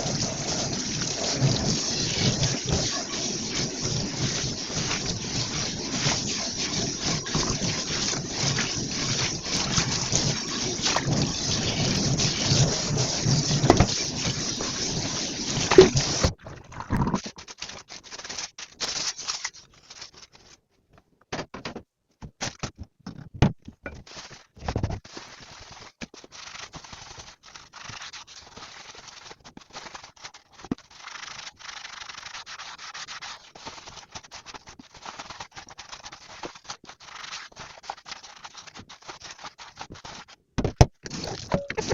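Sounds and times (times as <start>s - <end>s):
dishes scrubbed and rinsed: 0.0s - 17.8s, 41.0s - 41.9s.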